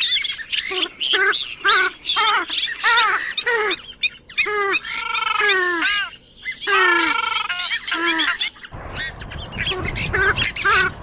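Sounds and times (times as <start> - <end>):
swamphen honking calls: 0.0 - 11.0.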